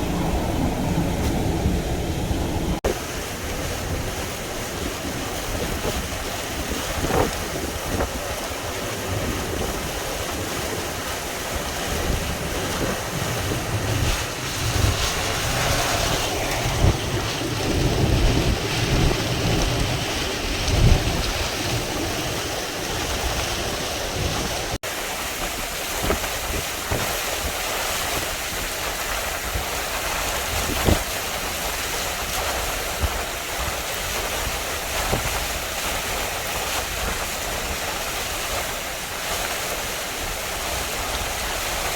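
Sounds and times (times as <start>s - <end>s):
storm surf rushing: 0.0s - 41.9s
wind buffeting microphone: 0.0s - 41.9s
wind-driven rain: 0.0s - 41.9s.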